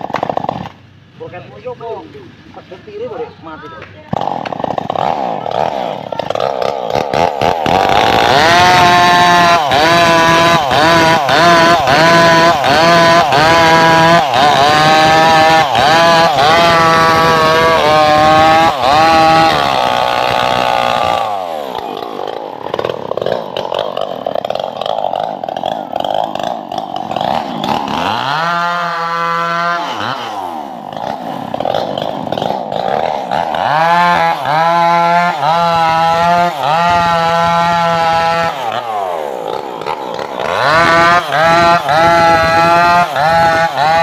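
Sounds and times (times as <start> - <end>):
engine-driven saw cutting wood: 0.0 - 3.3, 4.1 - 44.0.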